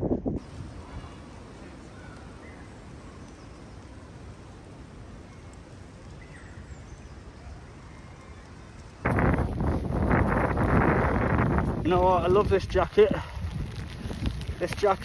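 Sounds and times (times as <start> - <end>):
wind buffeting microphone: 0.0 - 2.2, 9.0 - 15.0.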